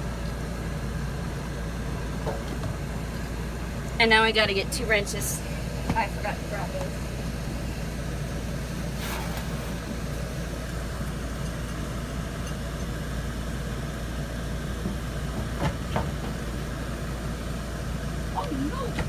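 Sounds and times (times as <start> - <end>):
short scraping burst: 8.9 - 10.4.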